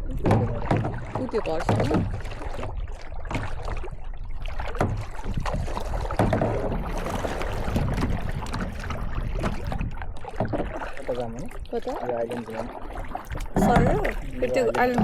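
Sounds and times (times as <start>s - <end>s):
wind rumble on microphone: 0.0s - 11.8s
paddle strokes and splashes: 0.0s - 15.0s.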